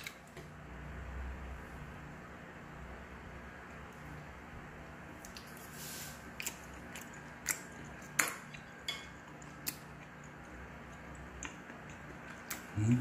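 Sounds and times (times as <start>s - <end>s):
chewing raw fish: 6.2s - 13.0s.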